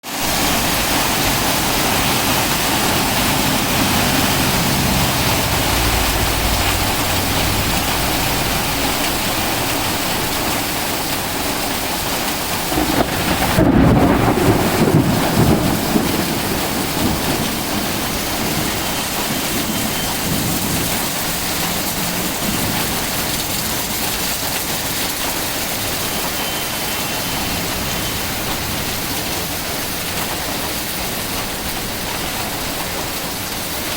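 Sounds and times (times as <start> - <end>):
heavy rain pouring: 0.0 - 33.9
low rumble of thunder: 0.3 - 24.8.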